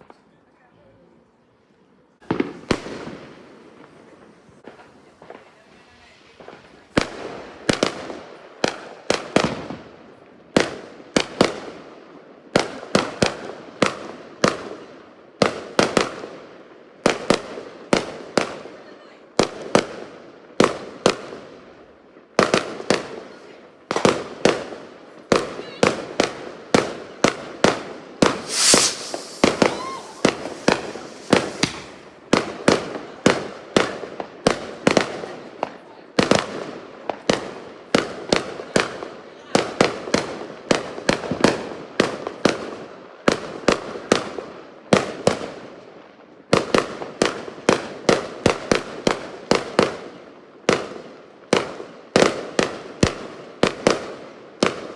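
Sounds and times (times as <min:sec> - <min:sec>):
hissing crackle: 0:28.3 - 0:32.2
fireworks bangs: 0:28.3 - 0:32.4.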